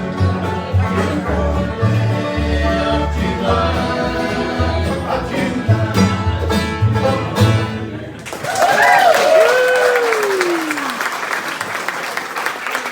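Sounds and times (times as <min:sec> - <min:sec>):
steady bass line: 0:00.0 - 0:08.0
banjo picking: 0:00.0 - 0:08.2
guitar picking: 0:00.0 - 0:08.2.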